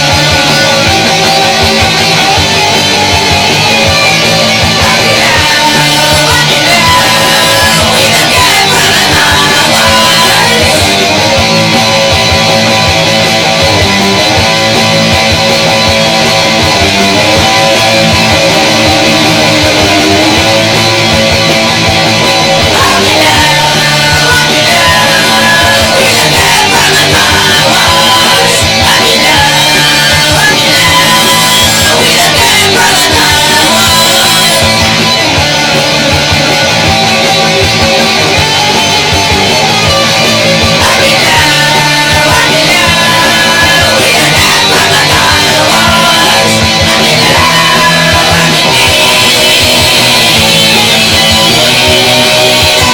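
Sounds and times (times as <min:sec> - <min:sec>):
rock band with electric guitars: 0:00.0 - 0:52.9.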